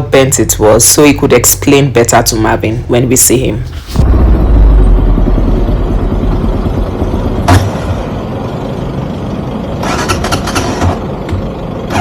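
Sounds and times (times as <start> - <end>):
motorcycle engine rumble: 3.7 - 11.8.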